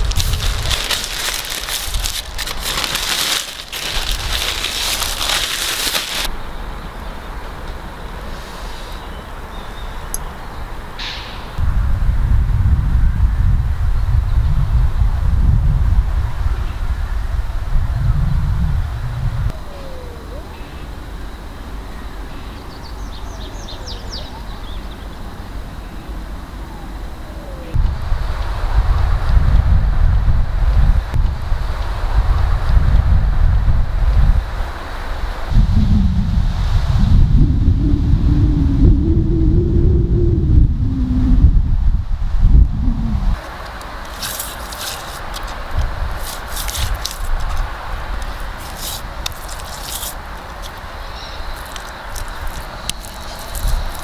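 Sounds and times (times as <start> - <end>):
wind rumble on microphone: 0.0 - 6.3, 11.5 - 20.4, 26.8 - 54.0
wood fire crackling: 0.0 - 6.3, 43.4 - 54.0
songbird singing: 0.0 - 11.2, 22.0 - 26.1, 43.0 - 54.0.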